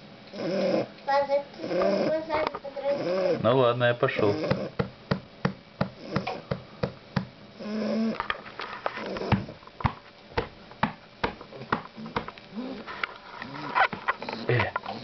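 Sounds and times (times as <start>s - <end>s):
puppy snoring and snuffling: 0.3s - 0.9s, 1.5s - 4.8s, 6.0s - 6.4s, 7.6s - 9.6s, 12.0s - 15.0s.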